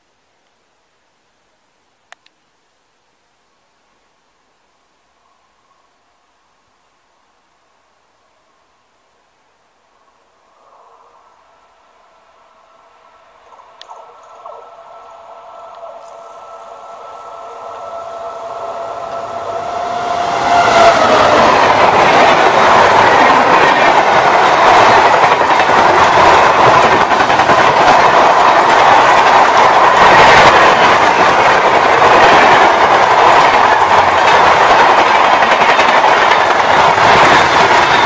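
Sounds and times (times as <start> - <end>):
train rushing past: 10.5 - 38.0
steady tone: 11.1 - 24.2
wheels clickety-clack on rails: 13.5 - 38.0.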